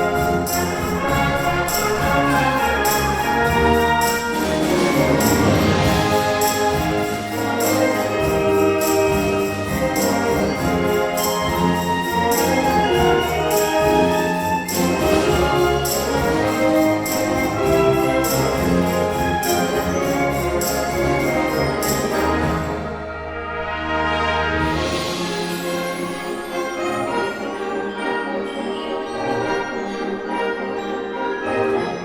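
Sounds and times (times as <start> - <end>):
percussion beat: 0.0 - 23.0
brass band playing: 0.0 - 32.0.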